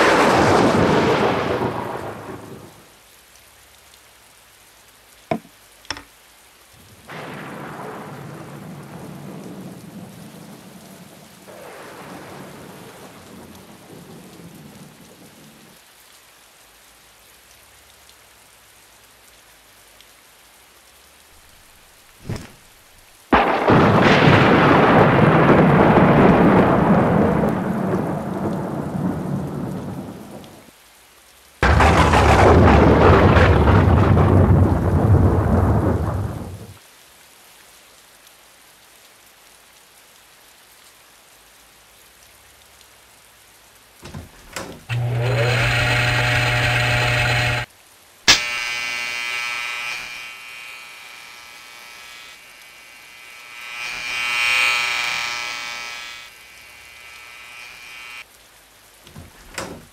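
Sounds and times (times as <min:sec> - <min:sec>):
thunder claps: 0:00.0 - 0:02.8, 0:07.1 - 0:10.8, 0:11.5 - 0:15.2, 0:23.3 - 0:30.6, 0:31.6 - 0:36.8
electric spark crackling: 0:21.4 - 0:24.0, 0:31.6 - 0:34.2, 0:44.3 - 0:47.7, 0:48.3 - 0:58.2
steady electric buzz: 0:44.3 - 0:47.7, 0:48.3 - 0:58.2.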